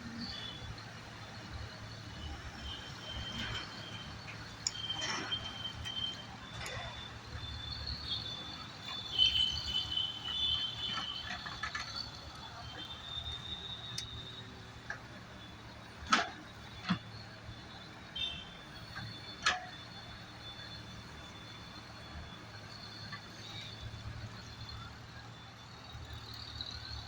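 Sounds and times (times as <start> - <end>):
excavator engine hum: 0.0 - 27.0
high squeaks from excavator arm: 2.2 - 14.3.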